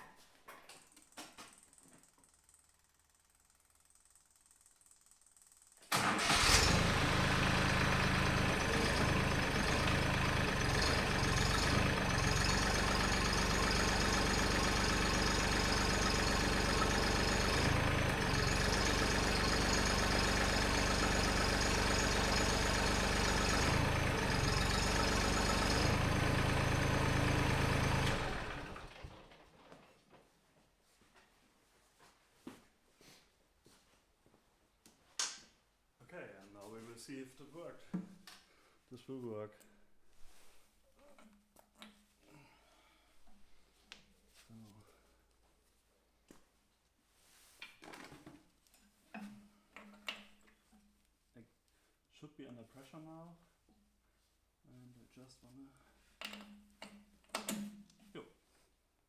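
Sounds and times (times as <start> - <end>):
tractor diesel engine running: 5.9 - 29.3.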